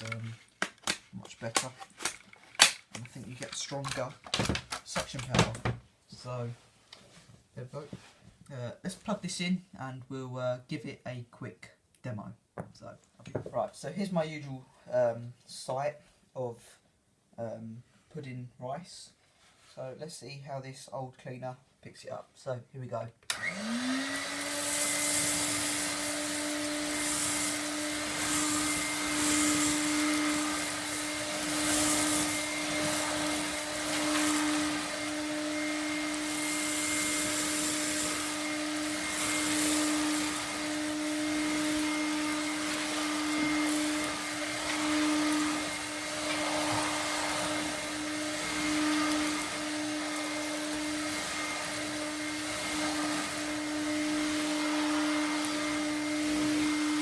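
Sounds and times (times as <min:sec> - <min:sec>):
vacuum cleaner motor running: 0:23.3 - 0:57.0.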